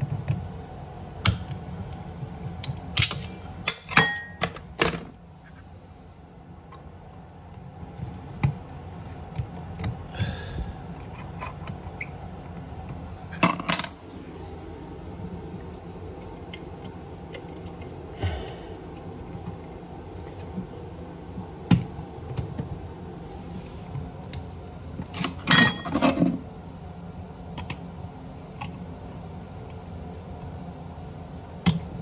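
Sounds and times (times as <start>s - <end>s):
faint steady hum: 0.0s - 32.0s
tools clattering: 13.4s - 14.0s.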